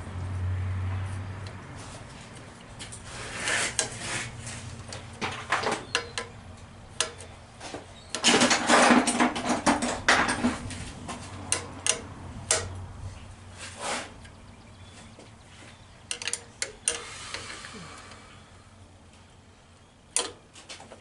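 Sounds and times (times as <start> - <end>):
metal tools clinking: 16.1 - 17.1.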